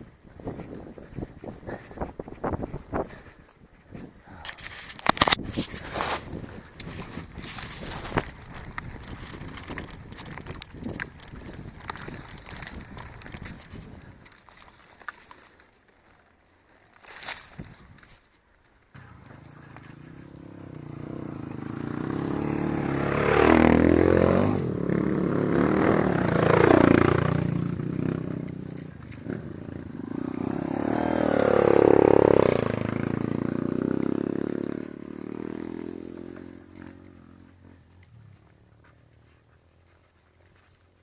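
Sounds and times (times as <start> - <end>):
motorcycle engine revving: 19.0 - 39.0.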